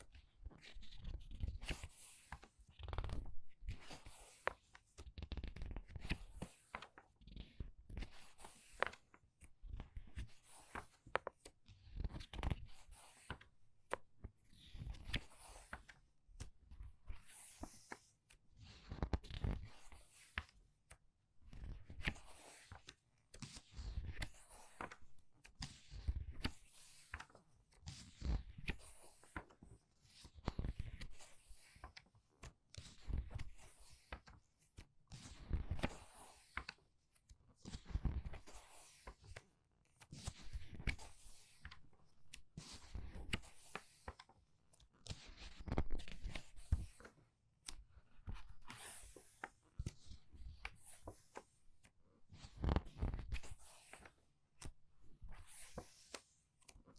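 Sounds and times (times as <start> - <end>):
book pages turning: 0.6 - 9.0, 9.7 - 11.4, 14.7 - 16.0, 35.4 - 39.4, 42.8 - 44.3, 45.0 - 51.4, 52.4 - 54.7, 55.3 - 56.7.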